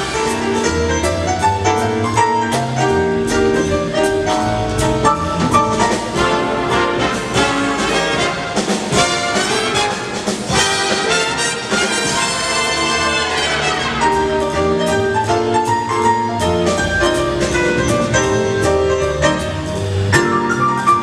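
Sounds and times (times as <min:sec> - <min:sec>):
drums and cymbals: 0:00.0 - 0:21.0
big band brass section: 0:05.3 - 0:14.8.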